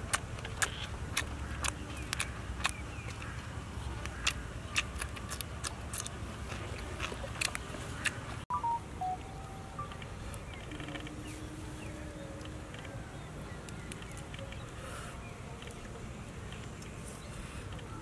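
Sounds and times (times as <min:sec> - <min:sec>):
crunching of stem being chewed: 0:00.0 - 0:08.3
low outdoor rumble: 0:00.0 - 0:18.0.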